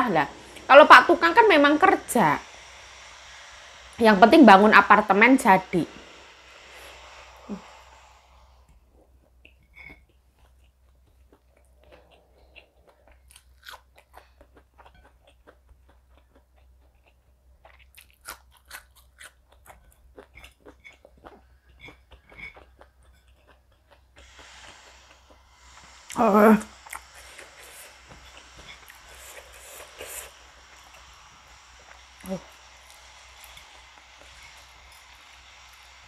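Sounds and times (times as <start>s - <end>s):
chewing and crunching crisp food: 8.6s - 36.0s.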